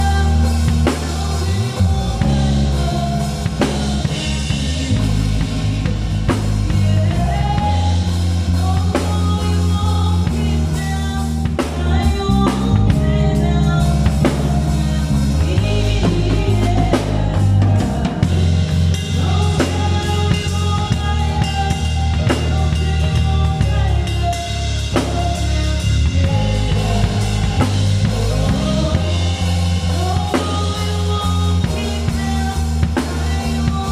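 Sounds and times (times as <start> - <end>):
band playing instrumental: 0.0 - 33.9
bass line: 0.0 - 33.9
drum kit beat: 0.0 - 33.9.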